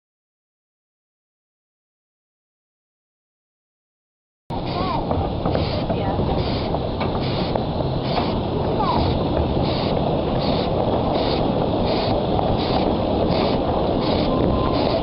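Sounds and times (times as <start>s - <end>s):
steam locomotive chuffing: 4.5s - 15.0s
train running rumble: 4.5s - 15.0s.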